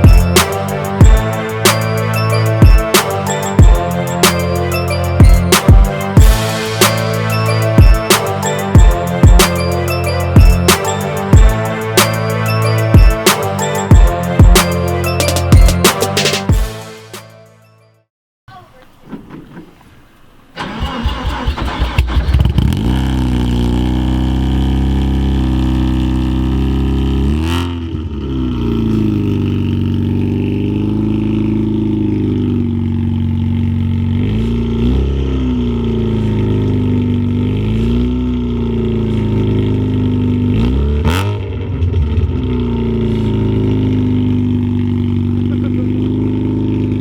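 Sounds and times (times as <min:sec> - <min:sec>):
engine cranking: 0:20.6 - 0:23.0.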